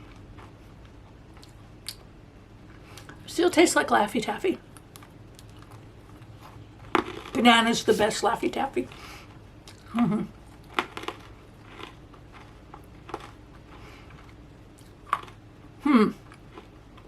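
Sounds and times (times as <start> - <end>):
crisp chewing crunches: 4.7 - 7.4, 8.9 - 15.5, 16.2 - 17.0
person humming: 15.8 - 16.2.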